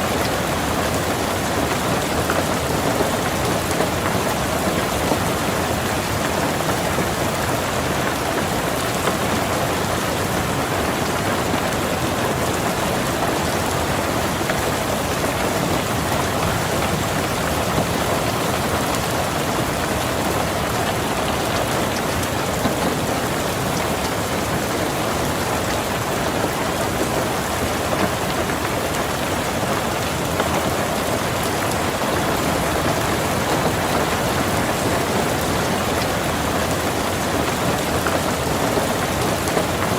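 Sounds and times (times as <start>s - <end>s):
rain on a car roof: 0.0s - 39.9s.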